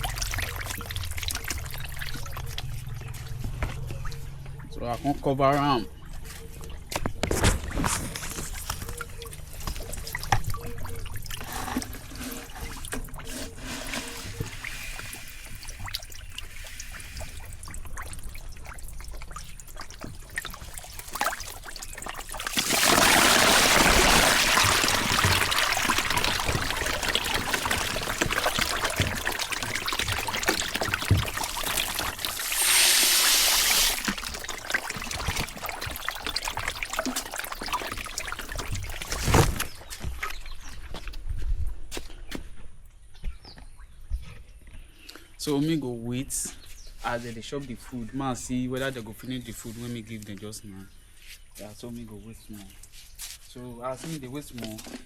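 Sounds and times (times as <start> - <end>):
water splashing and pouring: 0.0 - 4.7, 6.6 - 40.8.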